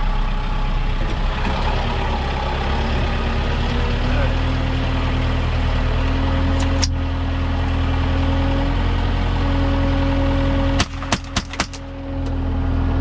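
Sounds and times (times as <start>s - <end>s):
tractor engine running: 0.0s - 13.0s
gunshot: 10.8s - 11.8s.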